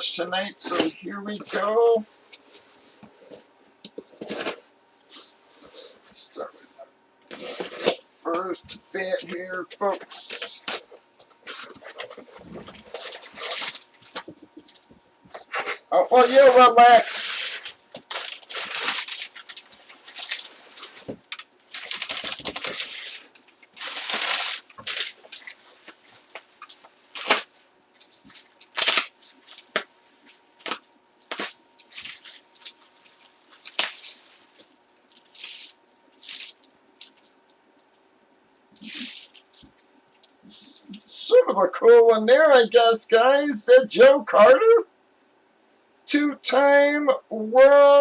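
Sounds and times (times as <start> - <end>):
packaging tearing and crinkling: 10.2 - 14.8, 15.5 - 37.4, 38.8 - 39.7.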